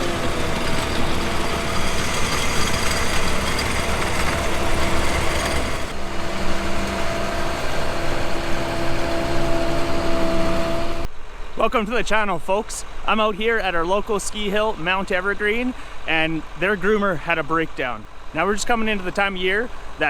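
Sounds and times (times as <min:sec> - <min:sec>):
snow groomer engine idling: 0:00.0 - 0:11.1.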